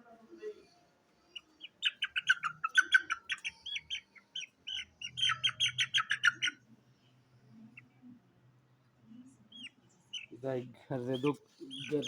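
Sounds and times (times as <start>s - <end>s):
chicks peeping: 1.4s - 6.6s, 11.1s - 12.0s.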